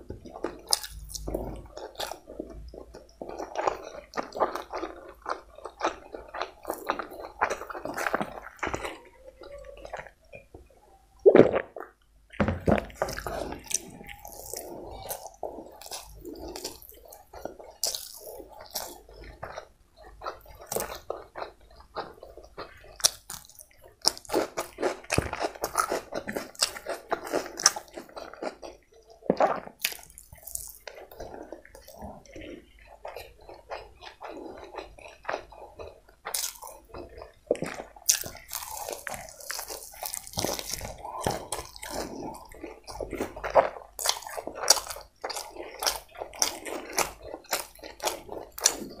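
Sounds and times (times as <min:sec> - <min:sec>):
person chewing: 0:00.0 - 0:49.0.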